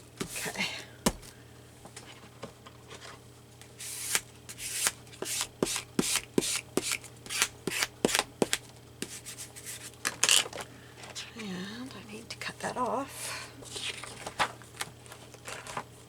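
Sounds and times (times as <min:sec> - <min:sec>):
scissors snipping paper: 0:03.9 - 0:09.2.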